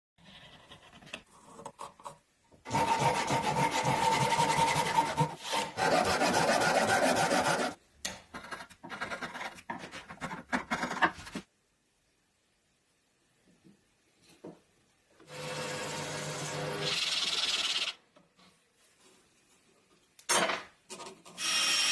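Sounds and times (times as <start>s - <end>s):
hand tool scraping wood: 2.7s - 7.8s.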